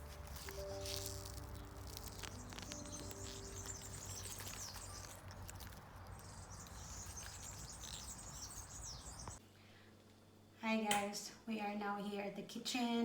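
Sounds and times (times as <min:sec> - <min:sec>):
background music: 0:00.0 - 0:04.7
small birds chirping: 0:00.0 - 0:09.4.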